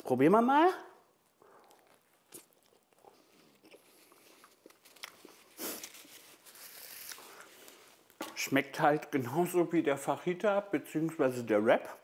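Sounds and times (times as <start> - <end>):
mouth chewing clicks and smacks: 1.3 - 5.5.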